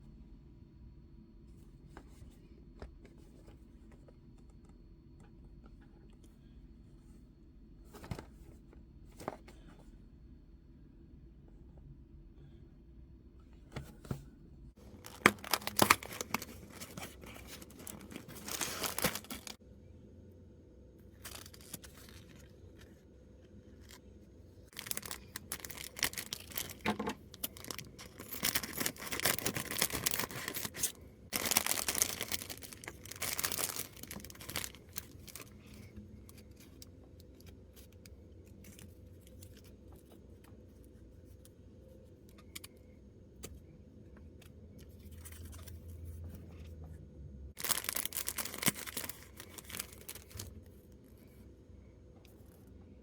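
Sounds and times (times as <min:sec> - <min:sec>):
packaging torn and crinkled: 0:14.9 - 0:19.6, 0:21.2 - 0:22.5, 0:24.7 - 0:35.5, 0:47.6 - 0:50.5.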